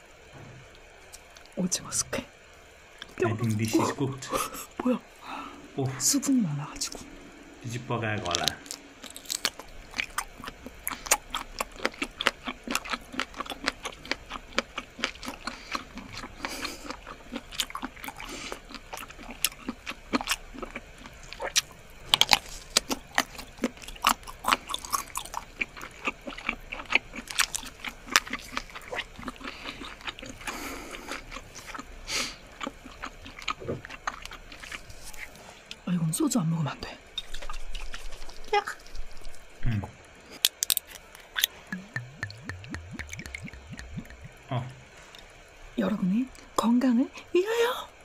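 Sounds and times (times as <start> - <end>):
person chewing: 8.2 - 35.8, 37.2 - 39.5, 40.2 - 45.4
mouth clicks and smacks: 40.4 - 44.9.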